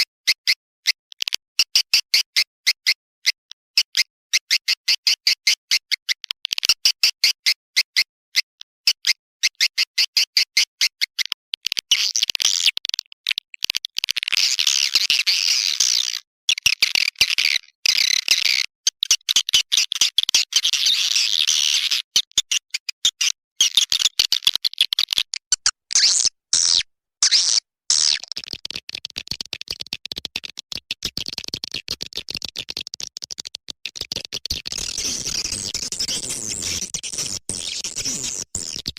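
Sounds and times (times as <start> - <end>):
swiftlet clicking chirps: 25.2 - 28.3.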